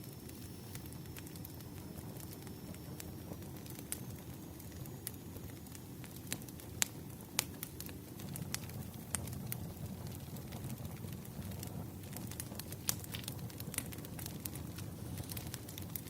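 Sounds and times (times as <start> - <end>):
logs crackling and popping: 0.0 - 16.0
wood fire rumbling: 0.0 - 16.0.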